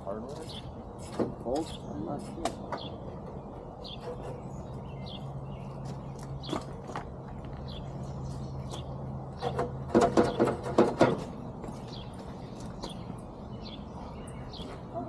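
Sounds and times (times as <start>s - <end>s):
flurry of knocks and rattles: 9.4s - 11.4s.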